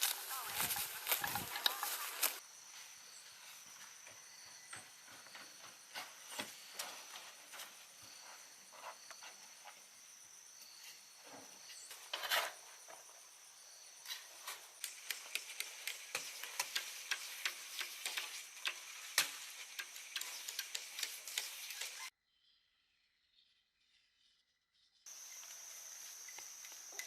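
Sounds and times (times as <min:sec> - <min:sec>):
sharp taps and knocks: 0:14.8 - 0:22.1.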